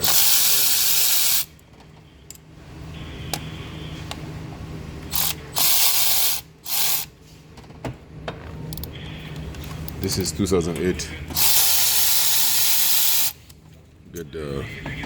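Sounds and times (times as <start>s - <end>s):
air tool hissing: 0.0s - 1.5s, 11.4s - 13.4s
ratchet clicks: 0.0s - 1.5s, 5.1s - 7.1s, 11.3s - 13.4s.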